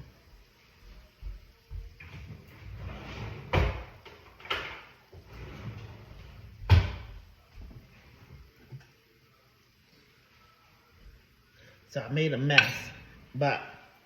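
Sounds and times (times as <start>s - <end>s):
drawer opening and shutting: 2.0s - 7.2s.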